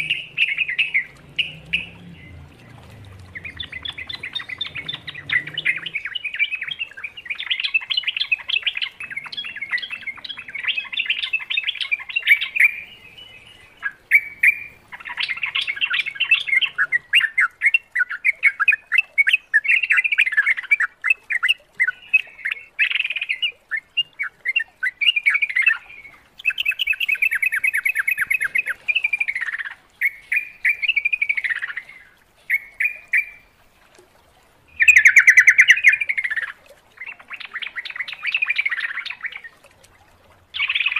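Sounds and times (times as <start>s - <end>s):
bird singing chattering notes: 0.0s - 2.5s, 3.4s - 20.7s, 26.4s - 33.4s, 34.8s - 39.5s.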